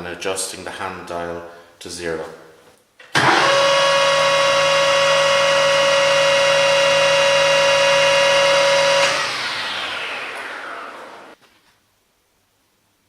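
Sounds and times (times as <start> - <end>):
lathe whining and winding down: 3.2 - 11.4.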